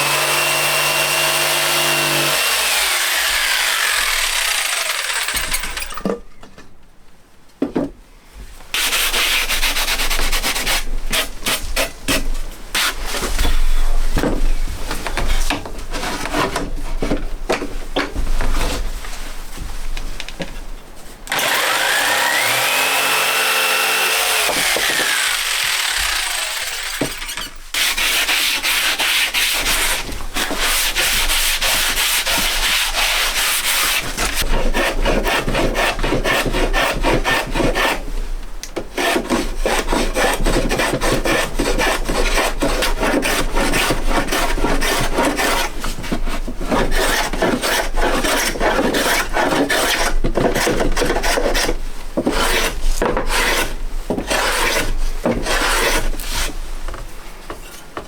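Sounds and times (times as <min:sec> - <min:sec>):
abrasive tool scraping wood: 0:00.0 - 0:06.0, 0:21.3 - 0:38.0, 0:39.0 - 0:56.6.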